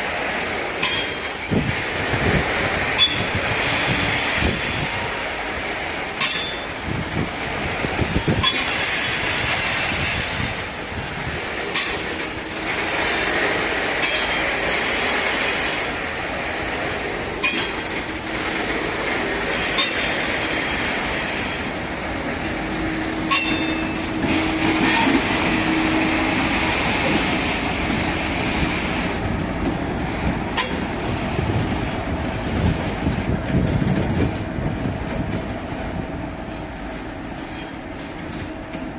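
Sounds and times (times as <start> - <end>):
train wagons rolling on rails: 0.0 - 38.9
clacks over rail joints: 0.8 - 1.7, 6.1 - 7.3, 8.2 - 9.0, 11.1 - 14.9, 16.8 - 20.4, 22.2 - 38.9.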